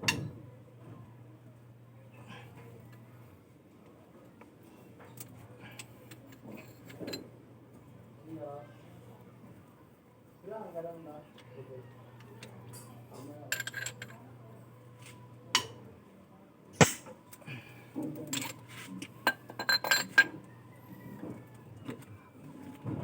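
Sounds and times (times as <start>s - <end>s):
hard objects clinking: 13.5s - 14.2s, 18.2s - 20.3s.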